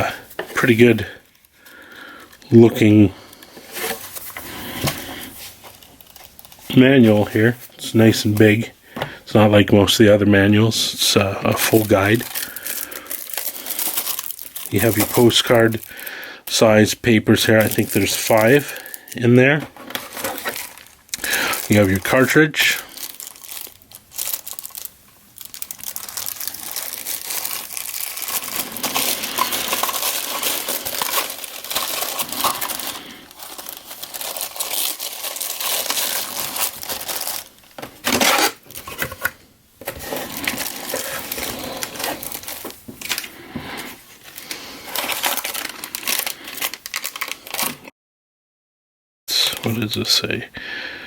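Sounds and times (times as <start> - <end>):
plastic packaging crinkling: 0.0 - 8.7, 11.4 - 47.9.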